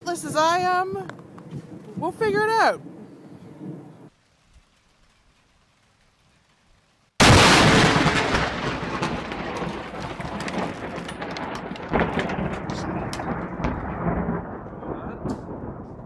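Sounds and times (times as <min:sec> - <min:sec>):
loud thunderclap and rumbling: 0:07.2 - 0:16.0
thunder cracks: 0:07.2 - 0:16.0.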